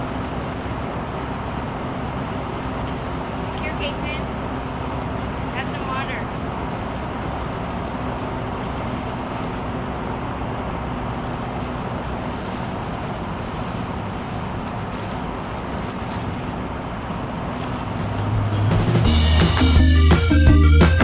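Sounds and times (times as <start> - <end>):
engine running steadily: 0.0 - 21.0.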